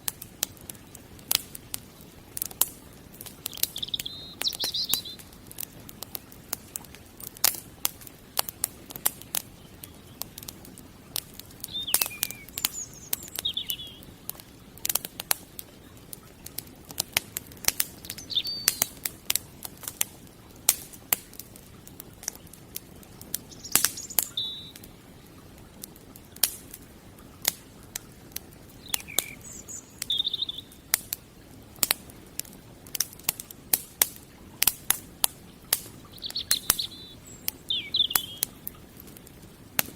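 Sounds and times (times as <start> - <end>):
wood fire crackling and popping: 0.0 - 39.9
bird chirping: 3.5 - 5.3, 11.6 - 14.2, 18.0 - 18.9, 23.5 - 24.8, 28.8 - 30.8, 36.1 - 38.5.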